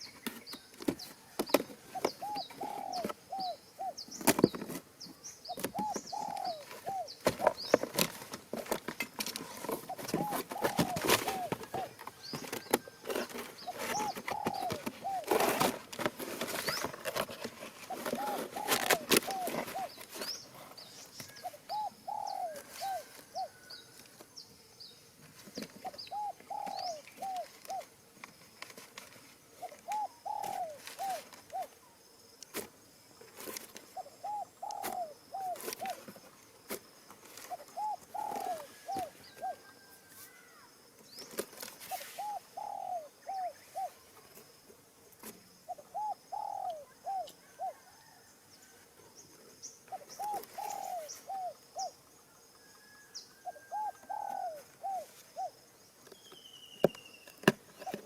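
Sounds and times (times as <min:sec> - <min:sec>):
dove cooing: 0:01.2 - 0:04.8, 0:05.5 - 0:23.8, 0:25.6 - 0:27.9, 0:29.5 - 0:32.0, 0:33.8 - 0:36.2, 0:37.3 - 0:40.7, 0:41.8 - 0:44.2, 0:45.7 - 0:48.2, 0:49.9 - 0:52.0, 0:52.8 - 0:55.6
small bird chirping: 0:01.9 - 0:08.0, 0:09.6 - 0:15.7, 0:16.4 - 0:25.0, 0:25.6 - 0:27.9, 0:37.4 - 0:39.8, 0:45.6 - 0:48.2, 0:49.2 - 0:52.0.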